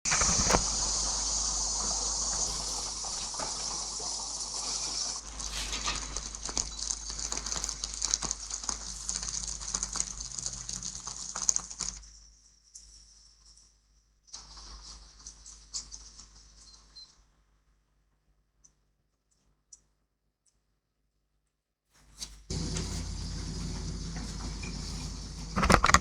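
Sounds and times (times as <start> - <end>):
rain falling: 0.1 - 12.0, 22.5 - 26.0.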